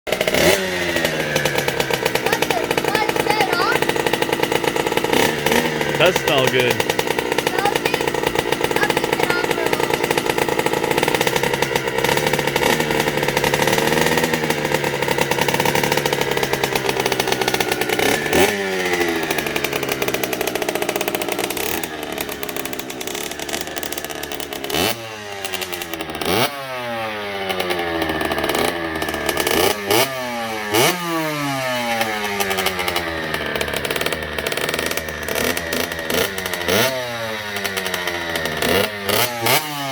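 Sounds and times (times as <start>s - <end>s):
two-stroke engine revving: 0.1s - 39.9s.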